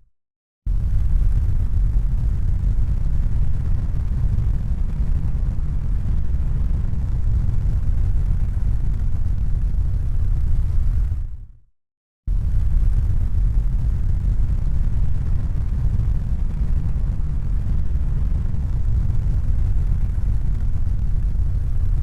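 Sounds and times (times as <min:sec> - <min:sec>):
low rumbling noise: 0:00.7 - 0:11.6, 0:12.3 - 0:22.0.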